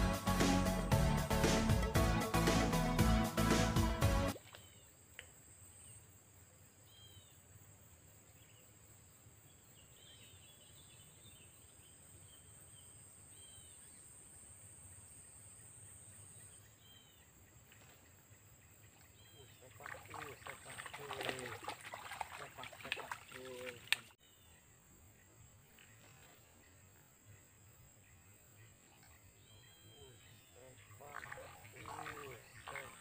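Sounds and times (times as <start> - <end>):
faint click: 4.4 - 5.4.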